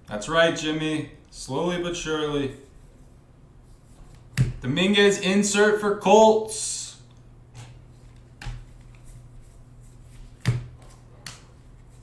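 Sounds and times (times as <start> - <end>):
low steady hum: 0.0 - 12.0
cards clicking and tapping: 10.2 - 11.6.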